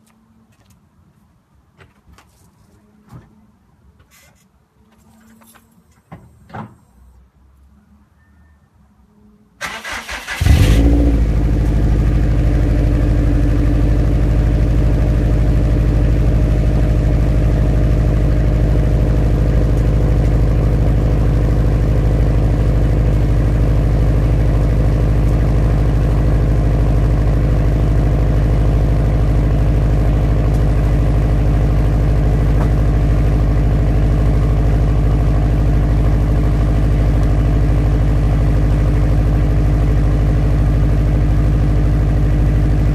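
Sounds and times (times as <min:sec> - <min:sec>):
car engine starting and idling: 0:09.6 - 0:42.9.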